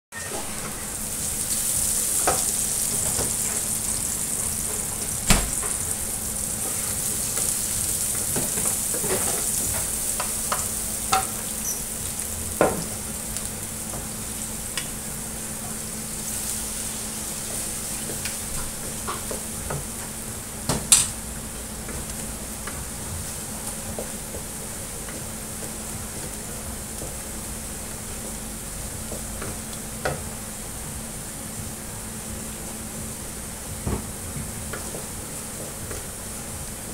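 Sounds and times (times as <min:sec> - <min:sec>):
food sizzling in hot oil: 0:00.2 - 0:30.4.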